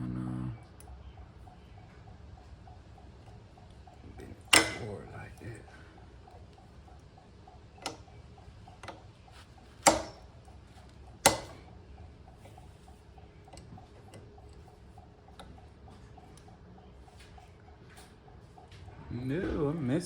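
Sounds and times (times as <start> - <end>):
pliers clicking on metal: 4.5 - 4.9, 9.8 - 10.3, 11.2 - 11.7.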